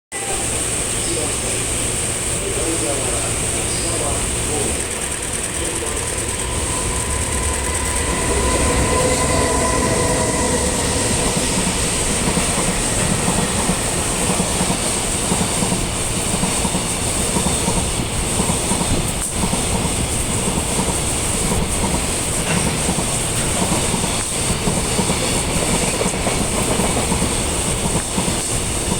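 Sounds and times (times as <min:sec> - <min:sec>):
train wheels rumbling on rails: 0:00.1 - 0:28.9
steady whining tones: 0:00.4 - 0:18.2.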